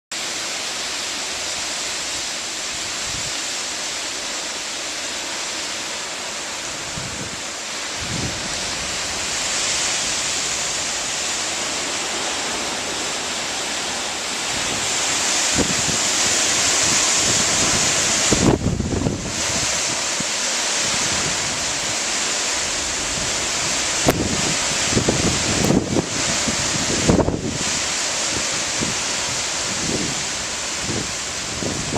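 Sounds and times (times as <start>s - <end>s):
rushing wind: 0.2s - 31.9s
wind buffeting microphone: 6.7s - 31.9s.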